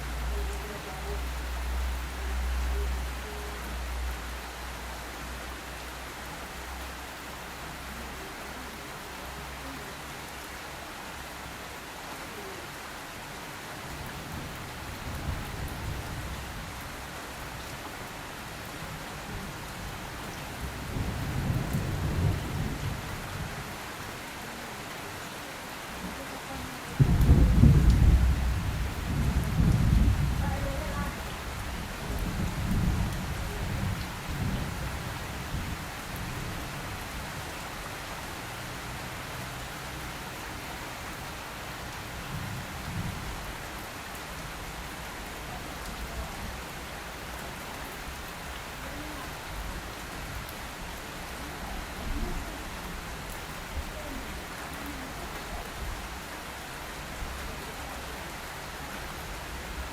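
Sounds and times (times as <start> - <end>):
steady rain falling: 0.0 - 59.9
thunder rumbling: 26.9 - 36.4.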